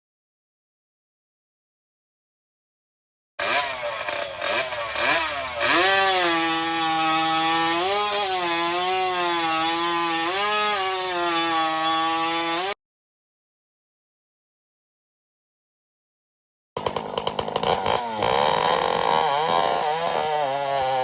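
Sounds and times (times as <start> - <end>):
two-stroke chainsaw revving: 3.4 - 12.8, 16.8 - 21.0.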